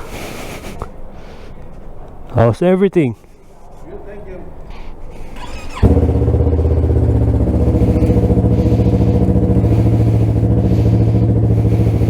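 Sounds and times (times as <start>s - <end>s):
motorcycle engine idling: 5.1s - 12.0s
motorcycle starter whir: 5.1s - 12.0s.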